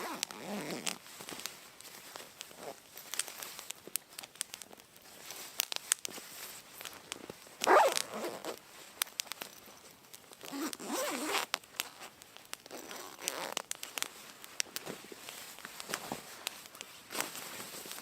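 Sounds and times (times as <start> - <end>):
zipper being pulled: 0.0 - 1.0, 7.6 - 8.6, 10.4 - 12.1, 12.7 - 13.6
sharp clicks and crackles: 0.1 - 18.0.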